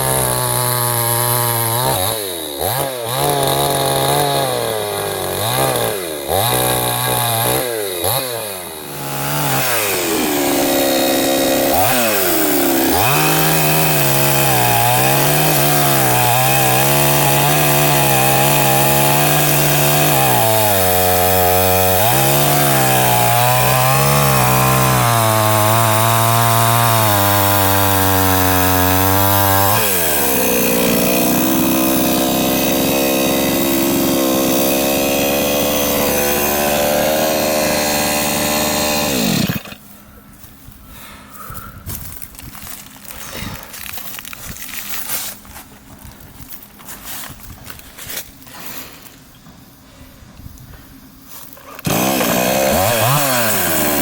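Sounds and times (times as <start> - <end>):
chainsaw revving: 0.0 - 39.8, 51.7 - 54.0.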